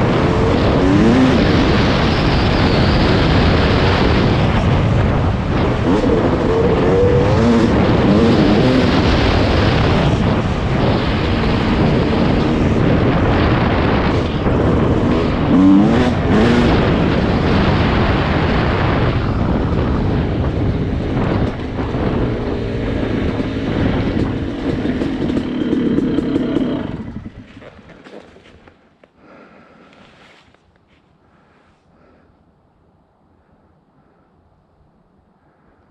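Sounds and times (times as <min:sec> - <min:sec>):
wind rush: 0:00.0 - 0:28.0
dirt bike engine revving: 0:00.0 - 0:28.2.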